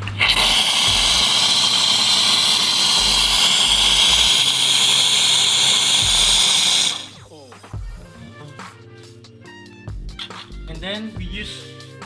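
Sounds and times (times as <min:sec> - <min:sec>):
hot water hissing from espresso machine: 0:00.0 - 0:07.2.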